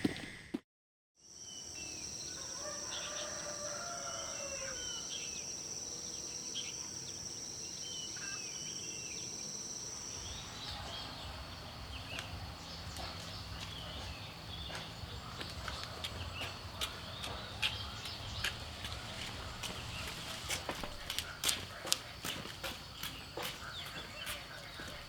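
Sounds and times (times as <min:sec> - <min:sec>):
birds chirping: 0:01.5 - 0:25.0
rooster crowing: 0:02.3 - 0:05.3.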